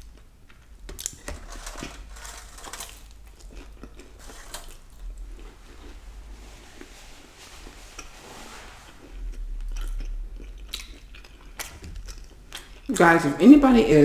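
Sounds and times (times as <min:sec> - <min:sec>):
person chewing food: 0:00.0 - 0:06.1, 0:08.9 - 0:13.0
small mouth clicks and smacks: 0:09.8 - 0:12.9.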